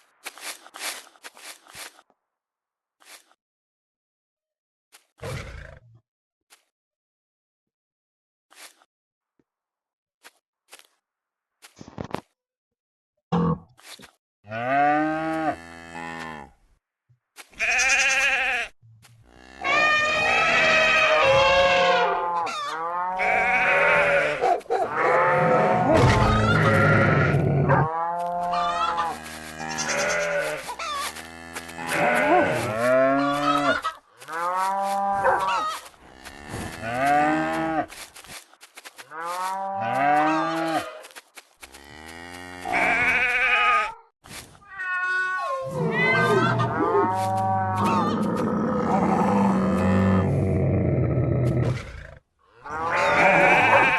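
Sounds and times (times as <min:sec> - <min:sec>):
farm animals calling: 0:17.6 - 0:18.7, 0:19.3 - 0:38.0, 0:45.4 - 0:49.9, 0:52.6 - 0:53.9.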